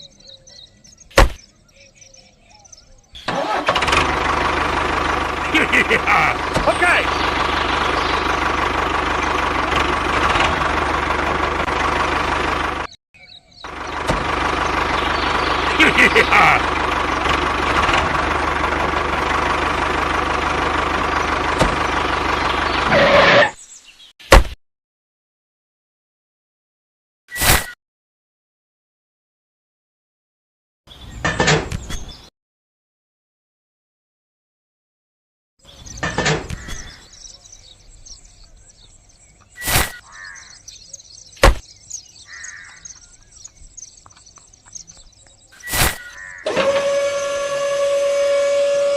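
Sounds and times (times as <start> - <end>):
birds chirping: 0.0 - 24.2, 30.9 - 32.3, 35.6 - 48.9
small tractor engine running: 3.3 - 23.4, 46.3 - 48.9
loud thump: 41.4 - 41.6.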